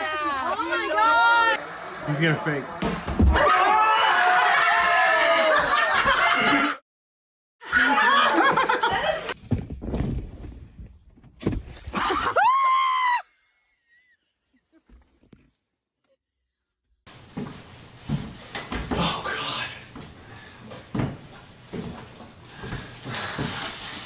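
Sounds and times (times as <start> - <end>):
people laughing and shrieking: 3.3 - 6.8, 7.6 - 9.4, 11.9 - 13.2.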